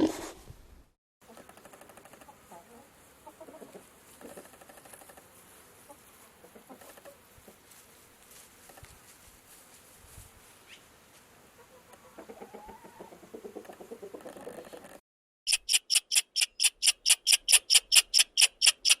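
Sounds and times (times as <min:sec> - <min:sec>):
chickens clucking: 0:01.2 - 0:07.7, 0:11.5 - 0:15.0.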